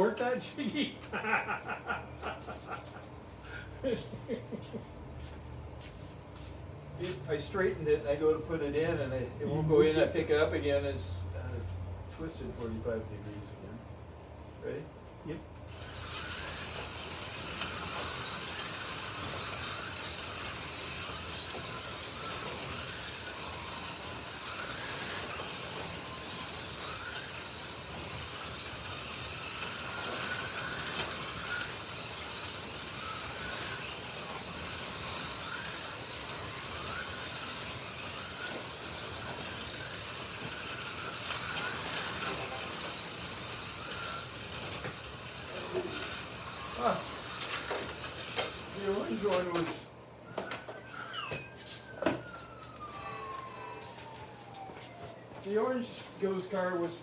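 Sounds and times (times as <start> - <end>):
slot car motors whining: 15.4 - 54.6
slot cars rumbling in track: 15.7 - 48.8.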